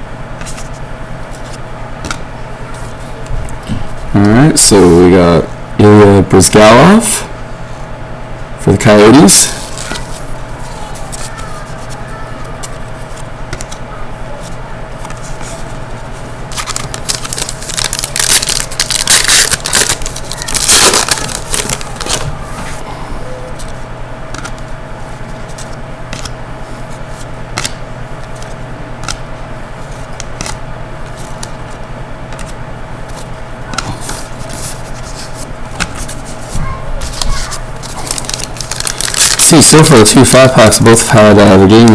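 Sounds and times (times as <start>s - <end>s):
cards clicking: 9.5s - 13.8s, 16.5s - 22.3s, 23.5s - 24.7s, 25.3s - 26.4s, 27.5s - 36.3s, 37.0s - 39.6s
wrapper crinkling and tearing: 16.5s - 22.6s, 37.0s - 40.8s.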